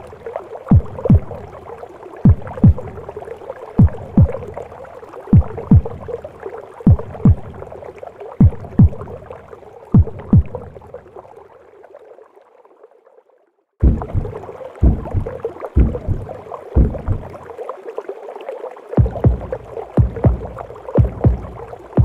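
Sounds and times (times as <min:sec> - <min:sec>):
heartbeat thumping: 0:00.7 - 0:01.5, 0:02.2 - 0:03.0, 0:03.8 - 0:04.5, 0:05.3 - 0:06.2, 0:06.9 - 0:07.7, 0:08.4 - 0:09.2, 0:10.0 - 0:10.8, 0:13.8 - 0:17.4, 0:19.0 - 0:22.0
whooshing gurgling wash: 0:13.8 - 0:17.4, 0:19.0 - 0:22.0.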